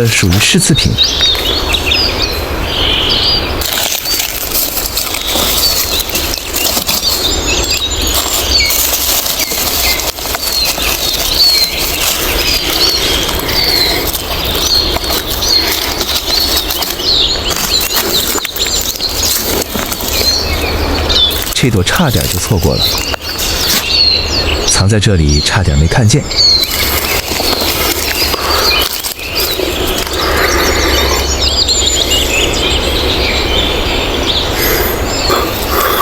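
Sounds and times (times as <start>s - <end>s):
small birds chirping: 0.0s - 36.0s
leaf litter rustling and crunching: 3.0s - 24.4s, 26.3s - 33.1s.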